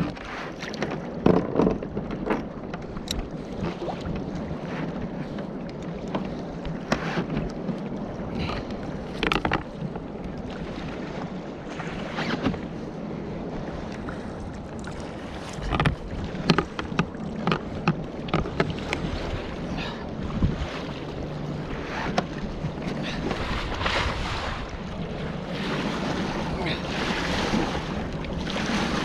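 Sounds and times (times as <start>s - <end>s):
sharp knocks and splashes: 0.0s - 4.9s, 8.5s - 10.1s, 14.0s - 19.6s, 21.8s - 29.0s
water slapping against kayak hull: 0.0s - 29.0s
wind on microphone: 0.0s - 29.0s.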